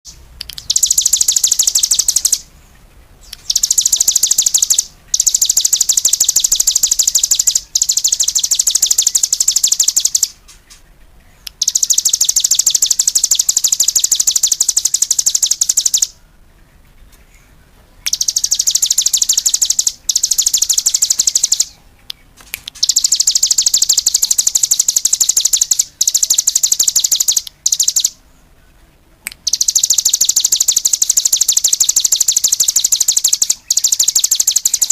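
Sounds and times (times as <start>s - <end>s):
songbird trilling: 0.4s - 2.5s, 3.2s - 16.3s, 17.4s - 28.2s, 29.3s - 34.9s.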